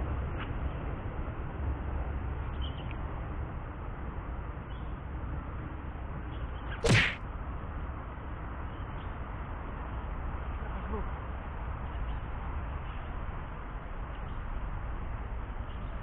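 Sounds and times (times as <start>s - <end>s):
fishing rod whoosh: 6.8s - 7.2s.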